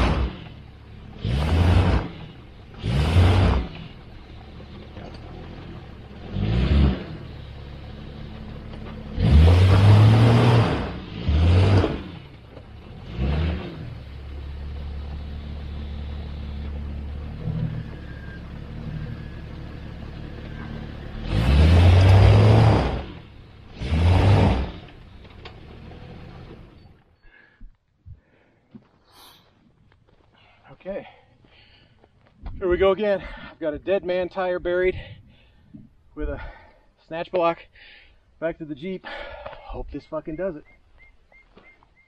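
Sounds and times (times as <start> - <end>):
engine revving and idling: 0.0 - 27.0.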